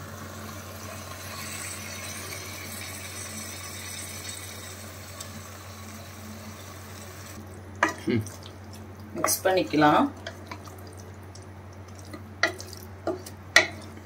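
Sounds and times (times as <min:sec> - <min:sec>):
meat sizzling in a pot: 0:00.0 - 0:08.6.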